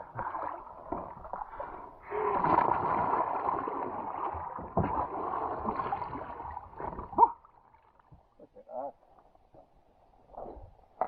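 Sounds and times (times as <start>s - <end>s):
water splashing around kayak: 0.0s - 8.4s.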